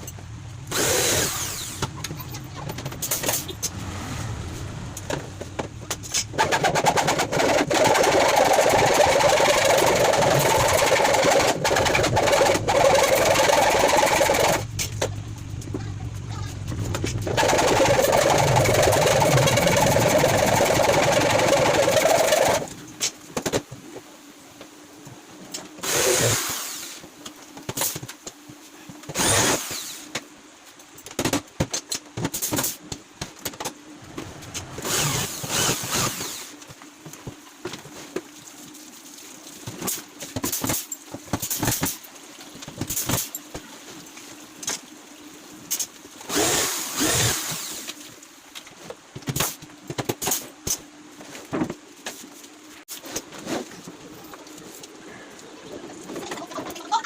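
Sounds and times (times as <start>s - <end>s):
electric power tool running: 0.7s - 1.8s, 34.7s - 36.5s.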